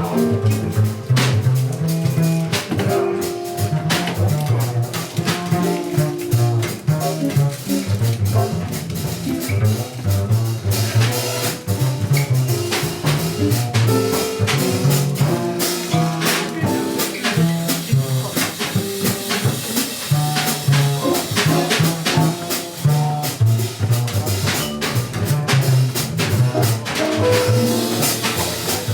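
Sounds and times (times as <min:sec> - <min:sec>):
double bass walking line: 0:00.0 - 0:28.9
drum kit cymbals: 0:00.0 - 0:28.9
horn playing: 0:26.6 - 0:28.9.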